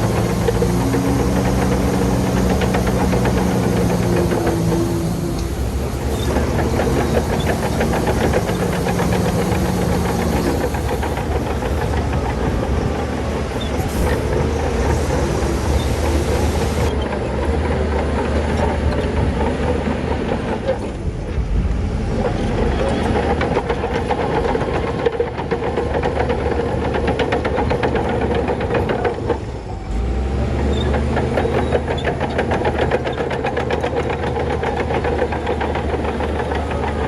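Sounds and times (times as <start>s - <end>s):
bulldozer diesel engine: 0.0s - 37.0s
clatter of tracks and stone: 0.0s - 37.0s.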